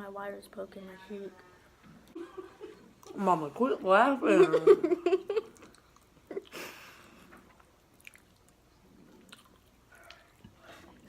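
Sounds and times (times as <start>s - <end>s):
person chewing food: 5.4s - 11.0s
wet mouth clicks: 7.6s - 10.6s.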